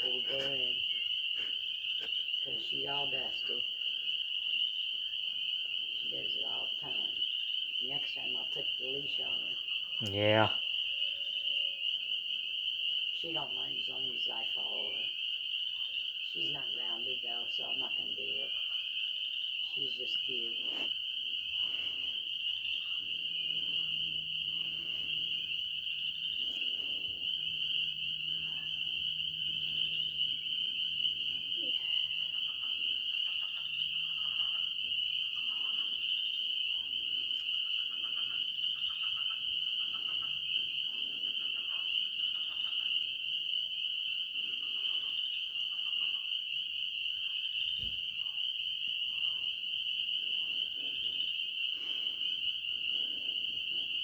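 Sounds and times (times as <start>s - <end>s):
frogs or insects trilling: 0.0s - 54.0s
faint low hum: 19.5s - 43.0s.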